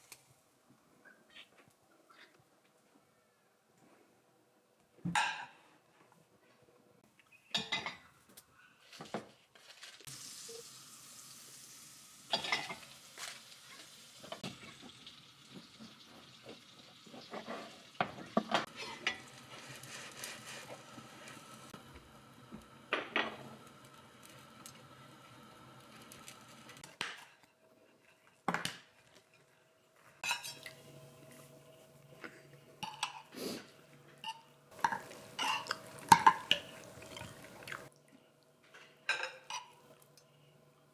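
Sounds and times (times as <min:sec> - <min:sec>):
pots and cutlery clattering: 0:07.5 - 0:08.1, 0:12.3 - 0:12.9, 0:17.1 - 0:19.4, 0:30.2 - 0:30.7, 0:32.8 - 0:33.3, 0:34.2 - 0:36.8, 0:38.8 - 0:39.8
faint steady hiss: 0:09.6 - 0:27.2.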